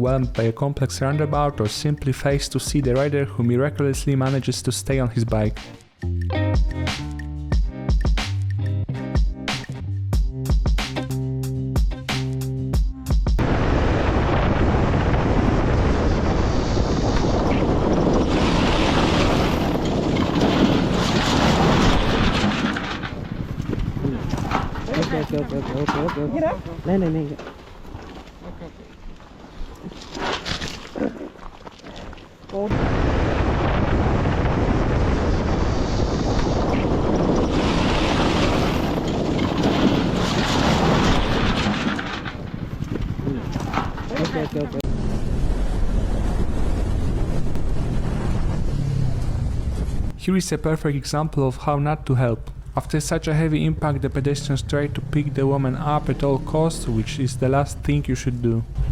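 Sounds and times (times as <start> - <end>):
wind rush over microphone: 13.4 - 27.0, 32.7 - 44.1, 44.8 - 50.2.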